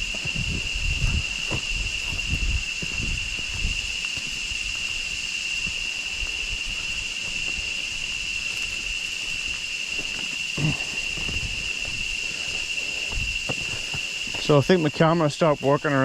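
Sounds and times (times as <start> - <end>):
low rumbling: 0.0 - 9.5
high-pitched jungle insects droning: 0.0 - 16.0.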